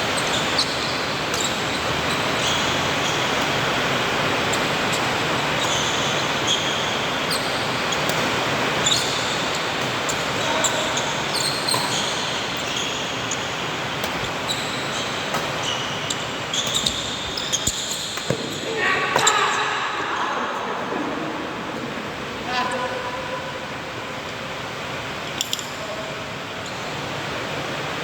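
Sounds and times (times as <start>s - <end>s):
shoes squeaking on court: 0.1s - 3.5s, 4.5s - 19.6s
racket hitting shuttlecock: 7.4s - 13.3s, 14.0s - 19.6s
crowd hubbub: 18.3s - 24.2s.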